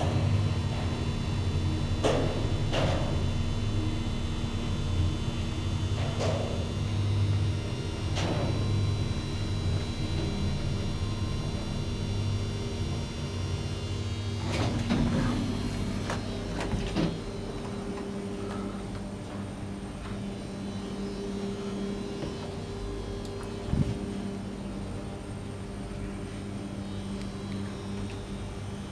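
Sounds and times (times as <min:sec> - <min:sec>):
elevator machinery hum: 0:00.0 - 0:28.9
elevator doors clicking and knocking: 0:14.4 - 0:18.2.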